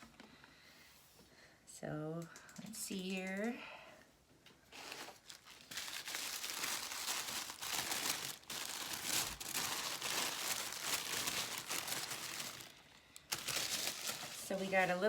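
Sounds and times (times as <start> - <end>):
paper wrapping crinkling: 4.7 - 15.0.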